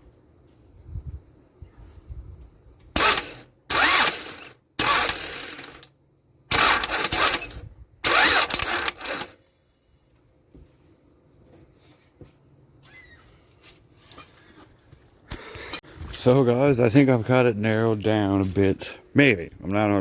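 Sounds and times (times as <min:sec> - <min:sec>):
car engine cranking without starting: 0:03.0 - 0:05.9, 0:06.5 - 0:09.4.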